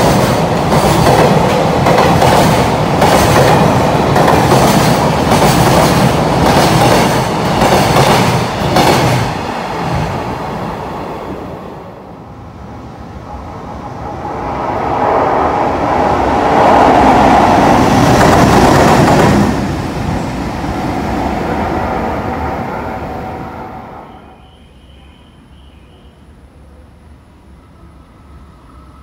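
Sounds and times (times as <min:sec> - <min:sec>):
freight train wheels over rail joints: 0:00.0 - 0:11.0, 0:13.2 - 0:23.4
container train rumble: 0:00.0 - 0:25.1.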